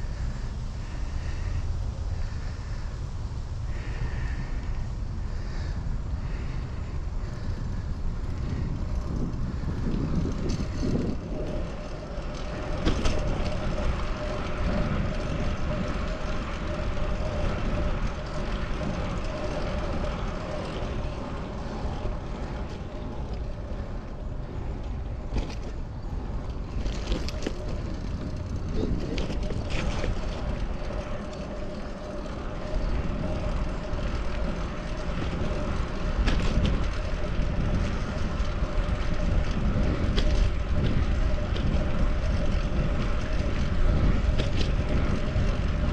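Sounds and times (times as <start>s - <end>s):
road and traffic noise: 0.0s - 45.9s
steady droning tone: 0.0s - 45.9s
wind rumble on microphone: 0.0s - 45.9s.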